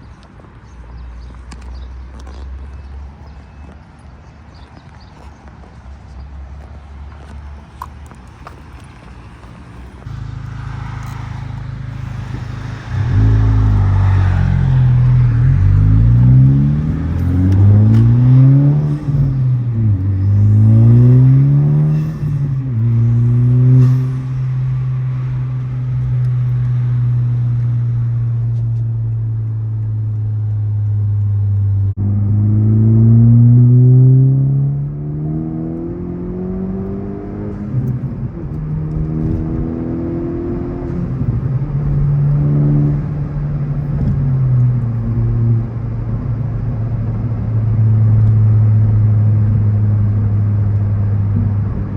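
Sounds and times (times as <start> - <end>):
car engine accelerating: 9.5 - 51.9.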